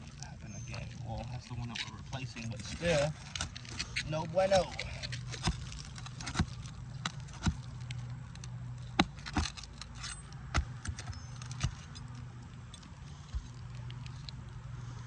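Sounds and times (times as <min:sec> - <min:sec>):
steady low hum: 0:00.0 - 0:15.0
metal bar scraping roof shingles: 0:02.4 - 0:12.2.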